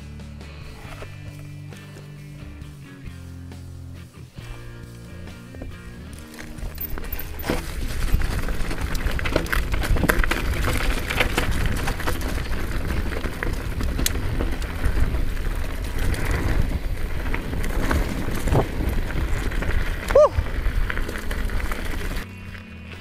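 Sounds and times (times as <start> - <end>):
bike tyres on dirt: 0.0 - 23.0
bike clicks and rattles: 0.6 - 23.0
wind rumble on microphone: 6.6 - 22.3.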